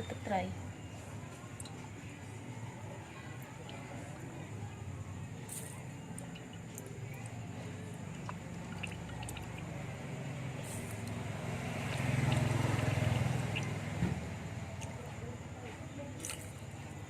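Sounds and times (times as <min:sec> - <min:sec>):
liquid trickling into bowl: 0:05.4 - 0:14.0.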